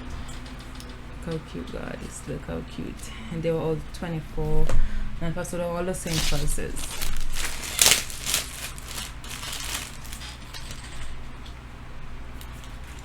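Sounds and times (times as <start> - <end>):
rustling of items handled: 6.0 - 10.8
sharp crinkle: 6.0 - 11.0.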